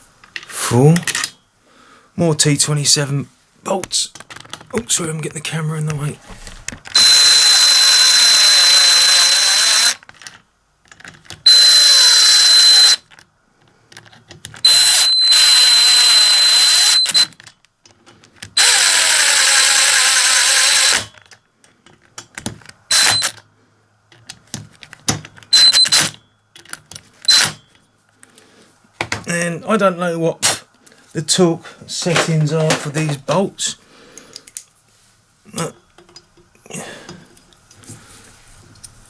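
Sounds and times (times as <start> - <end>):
electric driver whining: 6.9 - 10.0, 11.5 - 13.0, 14.6 - 17.4, 18.6 - 21.1, 22.9 - 23.4, 25.5 - 26.2, 27.3 - 27.6.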